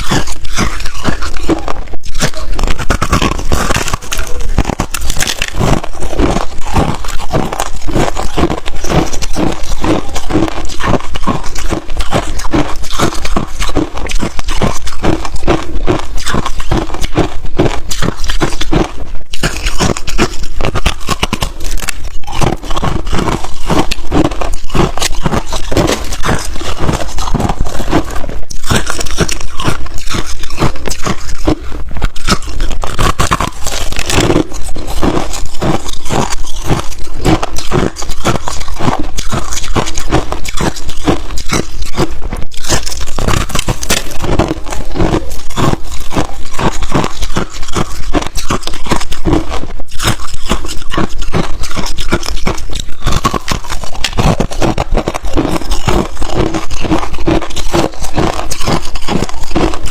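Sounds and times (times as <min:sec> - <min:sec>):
ice crunching being chewed: 0:00.0 - 0:59.9.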